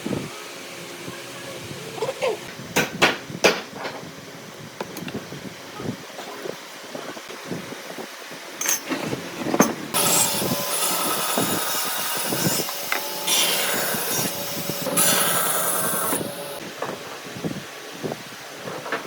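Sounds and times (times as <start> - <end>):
power tool cutting wood: 9.9 - 16.6.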